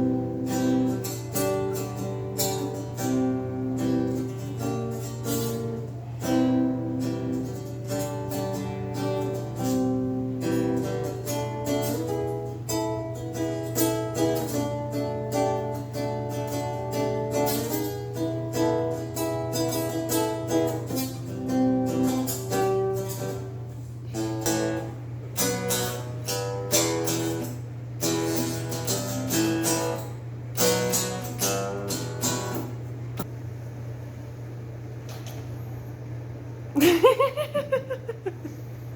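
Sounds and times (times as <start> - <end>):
acoustic guitar melody: 0.0 - 33.2
steady low hum: 19.9 - 38.9.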